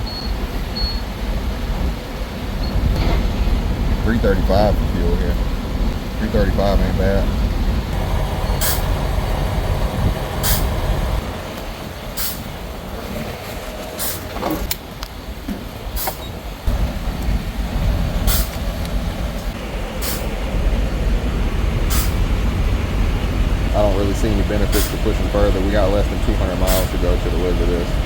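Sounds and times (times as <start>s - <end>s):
diesel truck engine idling: 2.7s - 13.3s, 13.9s - 28.0s
short air hiss: 8.6s - 9.0s, 10.4s - 10.8s, 12.2s - 12.5s, 18.3s - 18.6s, 20.0s - 20.3s, 21.9s - 22.2s, 24.7s - 25.1s.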